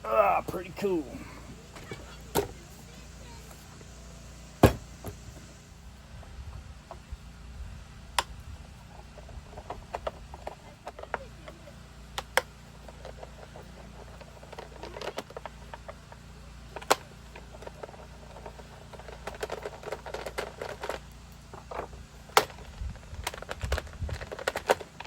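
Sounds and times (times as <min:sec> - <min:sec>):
sharp knocks: 0:04.6 - 0:05.2.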